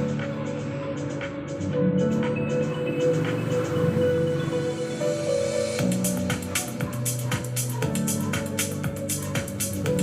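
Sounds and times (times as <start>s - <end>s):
electronic music with strong bass: 0.0s - 10.0s.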